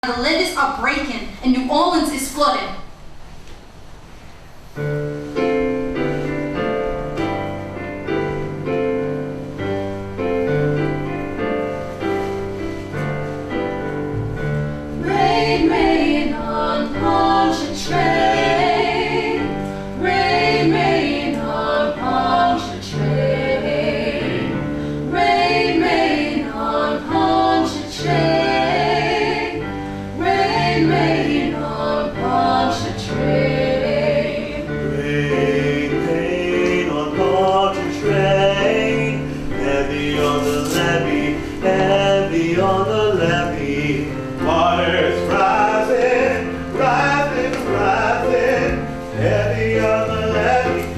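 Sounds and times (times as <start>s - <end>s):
choir singing: 15.0s - 50.9s.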